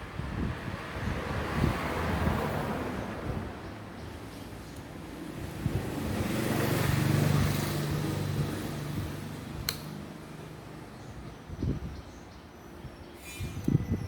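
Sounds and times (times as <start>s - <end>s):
passing vehicle engine hum: 0.0s - 10.9s
sharp click: 9.6s - 10.0s.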